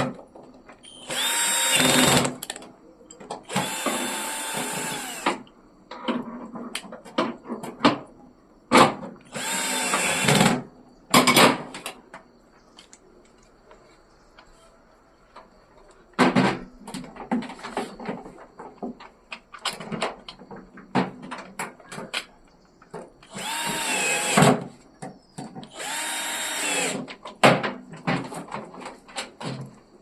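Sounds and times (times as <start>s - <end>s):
power drill running: 0.9s - 2.6s, 3.5s - 5.4s, 9.3s - 10.6s, 23.3s - 24.6s, 25.7s - 27.0s.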